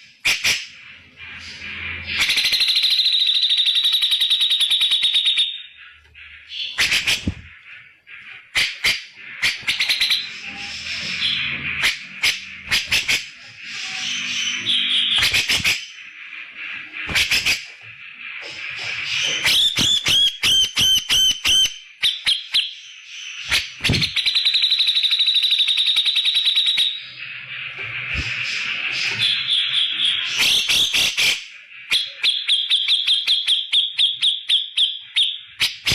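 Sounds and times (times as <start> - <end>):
bird giving harsh calls: 5.8 - 16.1.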